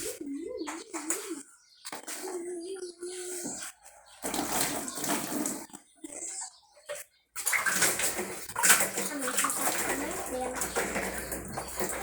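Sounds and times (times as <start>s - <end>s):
tap water running and splashing: 4.2s - 5.7s, 7.4s - 12.0s.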